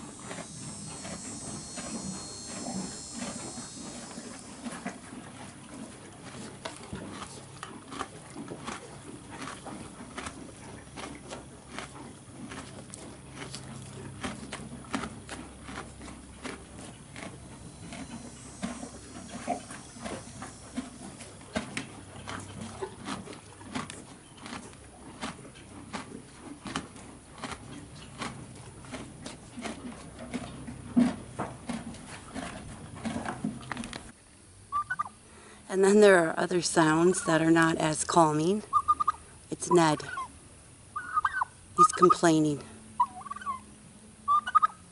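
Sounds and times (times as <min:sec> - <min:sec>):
horse chewing feed: 0:00.0 - 0:35.0, 0:35.8 - 0:40.3.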